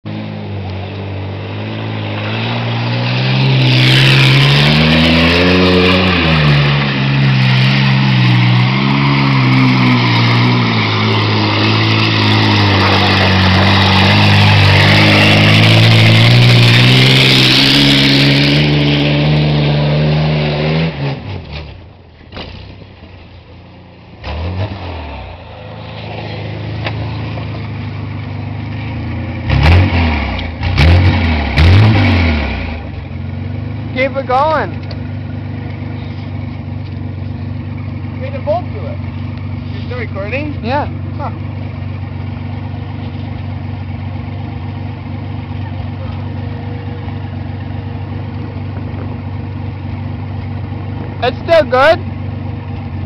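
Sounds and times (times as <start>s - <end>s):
truck engine revving: 0.1s - 53.0s
wheels churning through mud: 0.8s - 20.7s.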